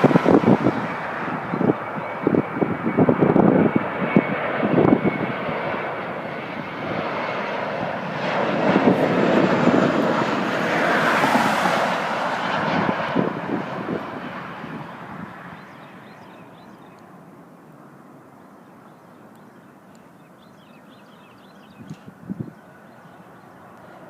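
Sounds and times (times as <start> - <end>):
wind buffeting microphone: 0.0 - 16.8, 20.5 - 22.8
jet engine rush: 0.0 - 24.0.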